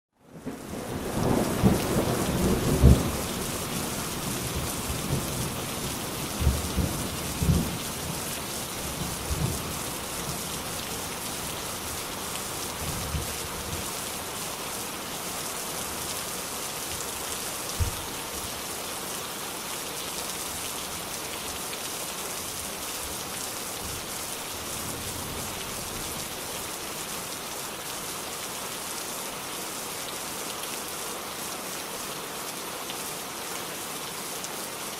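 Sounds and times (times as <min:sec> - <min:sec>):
steady rain falling: 0:00.2 - 0:34.9
thunder rumbling and crackling: 0:00.5 - 0:08.2.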